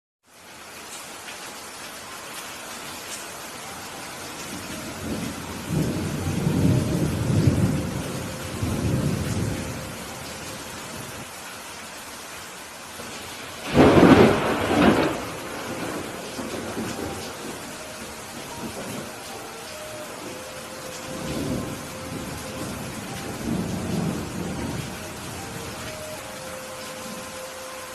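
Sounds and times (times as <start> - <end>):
heavy rain falling: 0.2 - 27.9
thunder rumbling: 4.5 - 11.2, 13.0 - 26.4
sharp thunderclap: 13.6 - 17.1.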